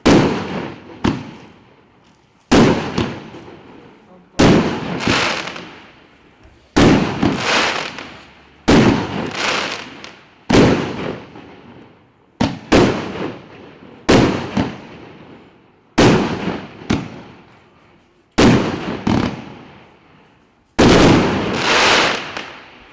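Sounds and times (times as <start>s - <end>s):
firework bangs: 0.0s - 1.6s, 2.5s - 13.5s, 14.1s - 15.1s, 16.0s - 17.3s, 18.4s - 19.8s, 20.8s - 22.9s.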